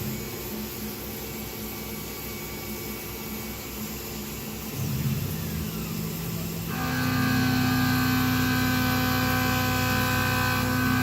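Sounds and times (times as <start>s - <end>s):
milling machine humming: 0.0s - 11.0s
loud low hum: 4.8s - 9.8s.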